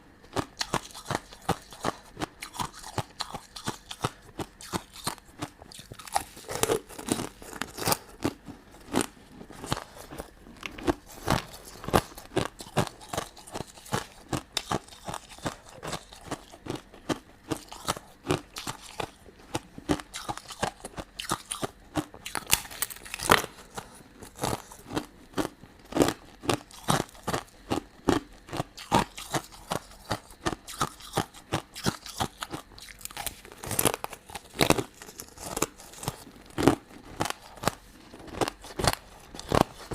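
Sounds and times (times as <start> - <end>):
person crunching sweets: 0.0 - 39.9.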